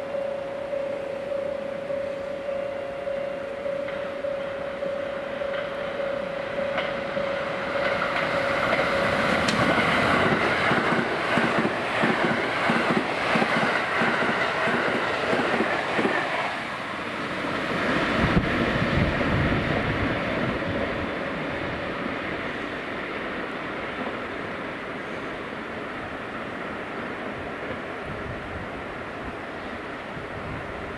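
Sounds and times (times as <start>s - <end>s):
steady high tone: 0.0s - 10.3s
train wheels rushing on rail: 0.0s - 30.9s
wheels clickety-clack over joints: 7.7s - 16.4s.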